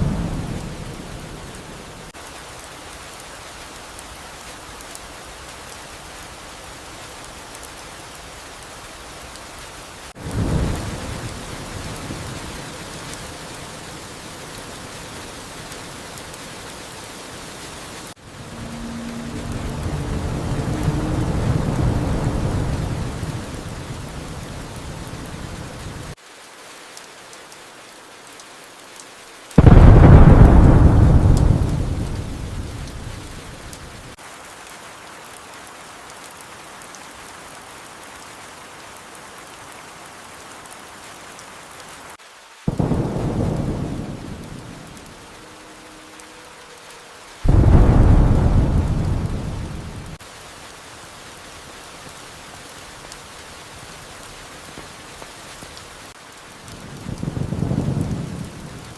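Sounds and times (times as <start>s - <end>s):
thunder rumbling: 0.0s - 1.8s, 18.2s - 26.1s, 29.6s - 34.2s, 42.7s - 46.1s, 47.5s - 50.2s, 56.8s - 58.9s
steady rain: 0.0s - 58.9s
thunderclaps: 10.2s - 12.6s, 18.3s - 25.8s, 29.6s - 34.2s, 42.7s - 45.4s, 47.5s - 50.2s, 56.7s - 58.9s.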